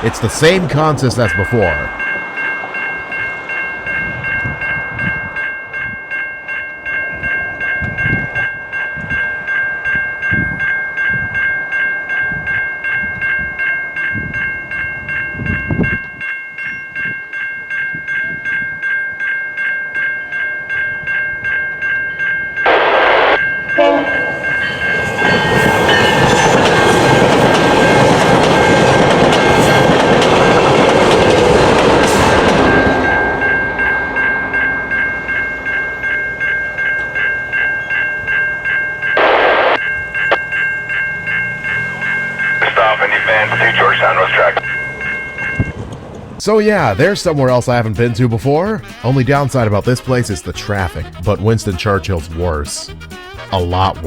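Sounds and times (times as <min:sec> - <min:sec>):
train rumbling on rails: 0:00.0 - 0:16.2, 0:22.1 - 0:48.0
level crossing bell ringing: 0:00.0 - 0:29.9, 0:32.6 - 0:45.8
train horn: 0:22.7 - 0:24.5.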